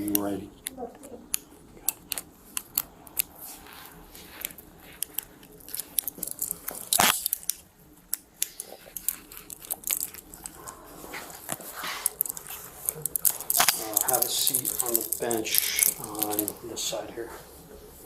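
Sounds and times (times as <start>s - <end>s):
handcuff ratchet rasping: 4.2s - 10.6s, 11.5s - 16.6s.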